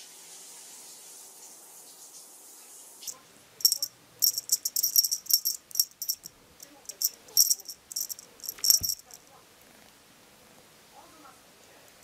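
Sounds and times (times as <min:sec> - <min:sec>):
faint steady hiss: 0:00.0 - 0:12.0
cat toy bell jingling: 0:03.6 - 0:09.2.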